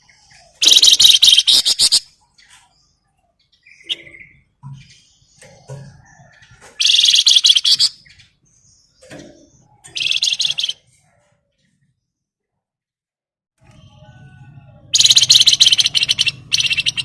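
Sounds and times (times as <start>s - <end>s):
songbird rattling trills: 0.0s - 2.6s, 3.6s - 8.2s, 9.8s - 10.8s, 14.9s - 17.0s
soft bird chirps: 0.0s - 12.6s, 13.6s - 17.0s.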